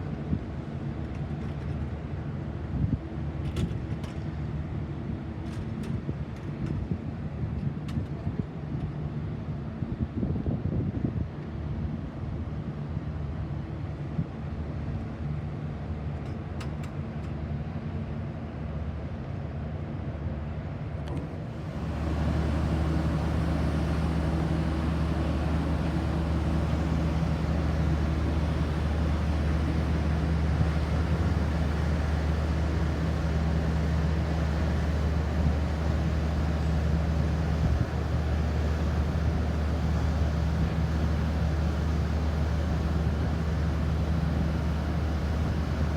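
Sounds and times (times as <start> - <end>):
ship engines droning: 21.1 - 45.9.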